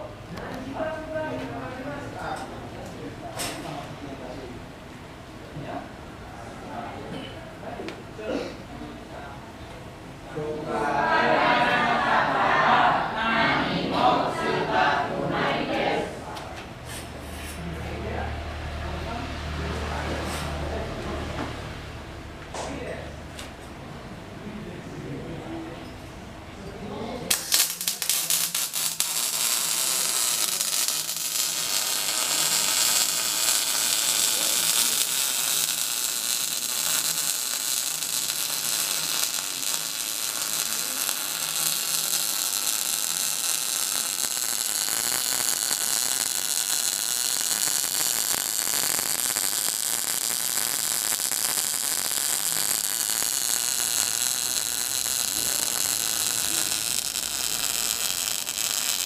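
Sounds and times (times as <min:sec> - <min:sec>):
faint electrical hum: 0:00.0 - 0:59.0
arc welding crackling hiss: 0:27.3 - 0:59.0.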